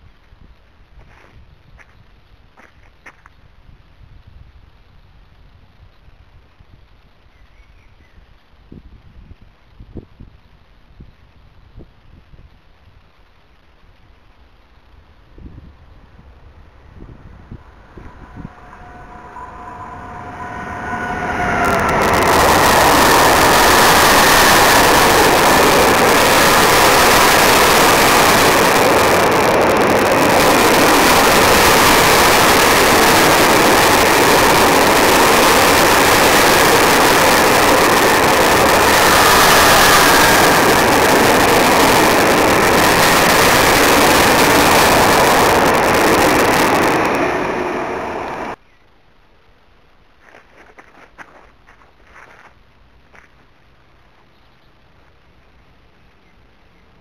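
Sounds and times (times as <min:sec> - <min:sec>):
steel wheels rolling on rail: 0:14.6 - 0:48.6.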